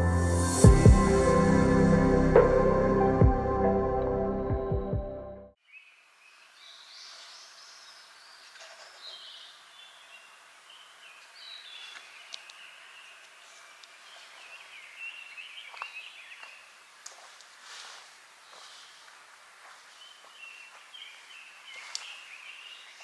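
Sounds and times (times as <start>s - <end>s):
songbirds singing and chirping: 5.6s - 16.8s, 18.5s - 19.1s, 19.9s - 23.0s
faint outdoor hiss: 5.6s - 23.0s.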